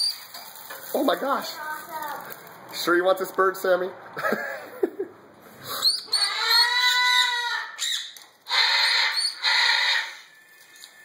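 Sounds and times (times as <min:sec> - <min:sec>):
parrot calling: 0:05.6 - 0:10.4
parrot squawks: 0:05.7 - 0:10.5.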